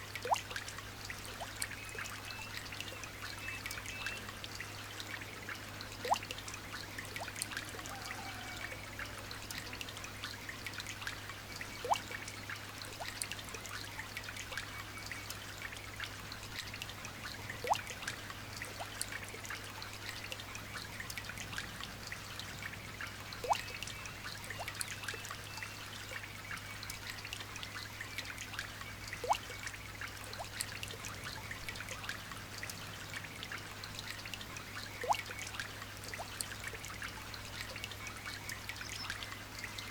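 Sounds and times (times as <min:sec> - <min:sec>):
light rain falling: 0:00.0 - 0:39.9
drop plinking into water: 0:17.6 - 0:17.9, 0:23.4 - 0:23.9, 0:29.2 - 0:29.6, 0:35.0 - 0:35.4.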